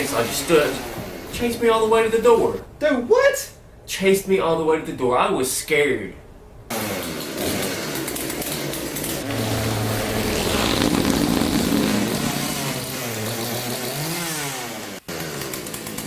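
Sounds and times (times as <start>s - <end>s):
chainsaw engine revving: 6.7s - 15.4s.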